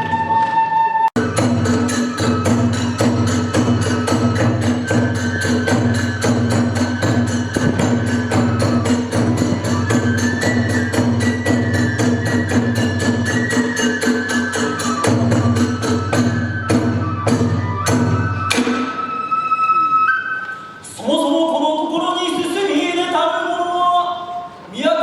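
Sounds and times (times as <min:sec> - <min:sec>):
high flute melody: 0:00.0 - 0:21.0
drums and hand cymbals: 0:01.2 - 0:19.3.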